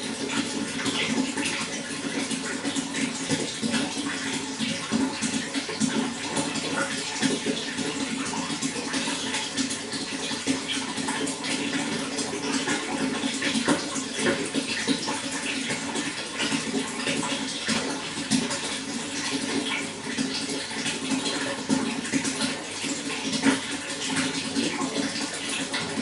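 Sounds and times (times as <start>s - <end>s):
running water splashing: 0.0s - 26.0s.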